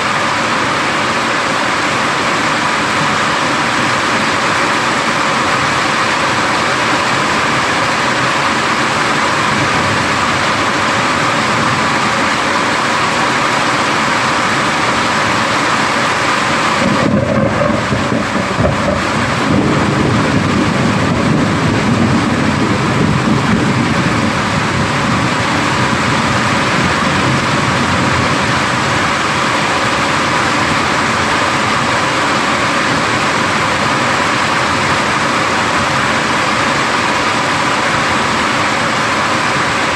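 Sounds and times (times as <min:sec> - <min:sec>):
heavy rain falling: 0:00.0 - 0:39.9
thunder rumbling: 0:16.6 - 0:35.0.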